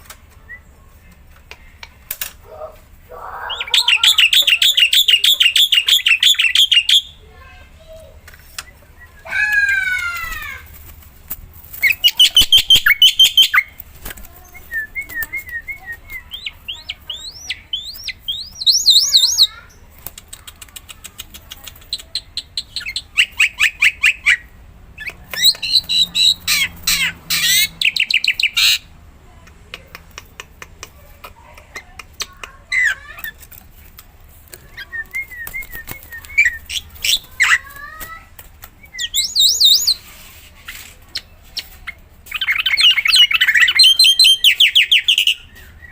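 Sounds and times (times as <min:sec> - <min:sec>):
starling singing: 0:02.5 - 0:07.2, 0:11.8 - 0:19.8, 0:21.7 - 0:28.9, 0:34.5 - 0:40.0, 0:41.1 - 0:45.9.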